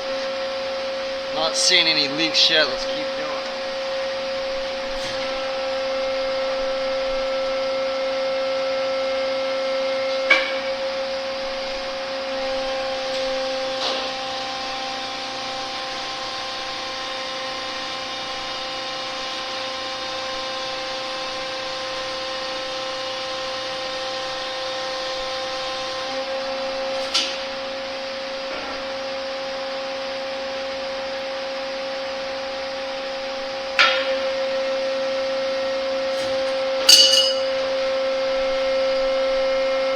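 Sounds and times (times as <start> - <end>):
hydraulic pump whining: 0.0 - 39.9.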